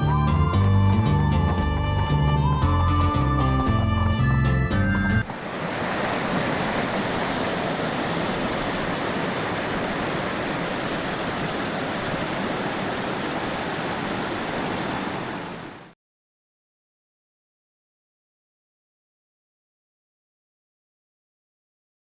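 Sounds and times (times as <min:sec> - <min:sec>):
mountain stream flowing: 0:05.2 - 0:16.0.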